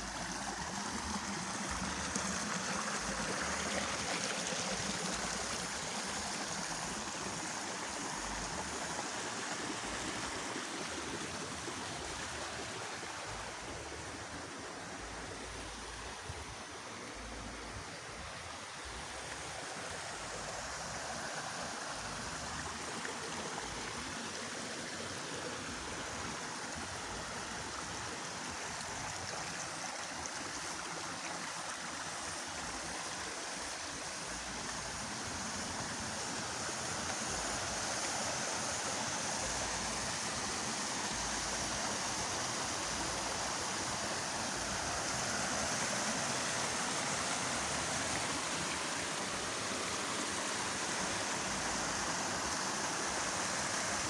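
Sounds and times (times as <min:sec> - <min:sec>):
fast-flowing water rushing: 0:00.0 - 0:54.0.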